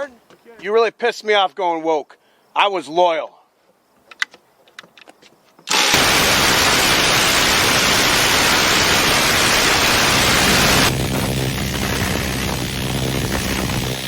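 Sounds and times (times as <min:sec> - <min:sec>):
minigun firing continuous burst: 0:05.7 - 0:14.0.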